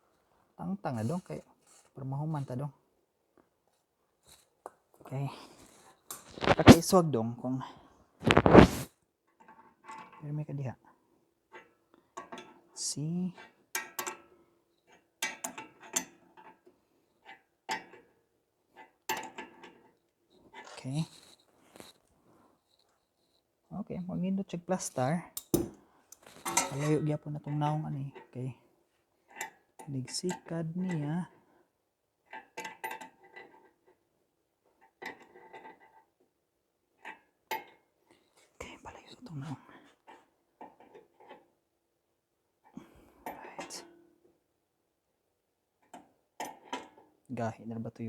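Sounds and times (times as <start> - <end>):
hand tools tapping on steel: 25.4 - 27.5.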